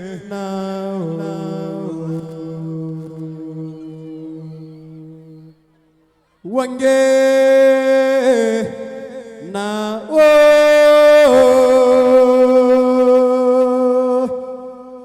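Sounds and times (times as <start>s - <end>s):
person chanting long notes: 9.4s - 15.0s.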